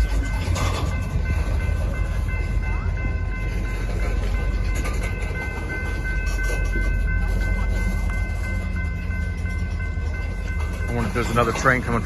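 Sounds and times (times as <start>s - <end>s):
train rumbling past: 0.0s - 12.0s.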